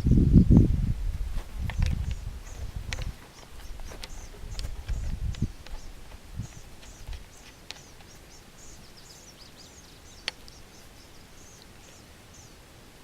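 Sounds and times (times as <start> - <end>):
small birds chirping: 0.0 - 13.0
sharp clicks: 1.6 - 8.8, 10.1 - 10.7.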